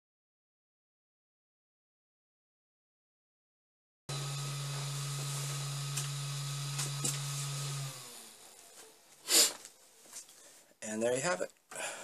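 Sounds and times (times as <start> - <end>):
printer humming: 4.1 - 8.5.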